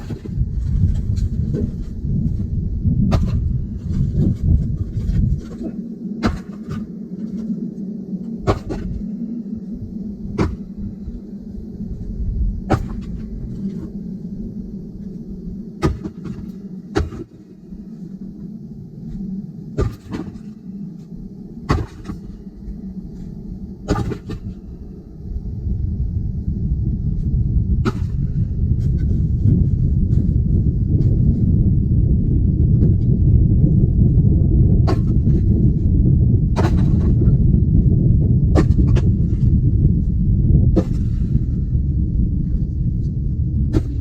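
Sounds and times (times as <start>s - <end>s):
low rumble: 0.0s - 44.0s.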